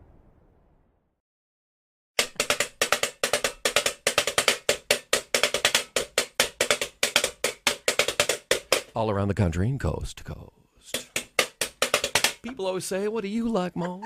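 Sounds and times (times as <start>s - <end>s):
fast percussion hits: 2.2s - 9.0s, 10.9s - 12.4s.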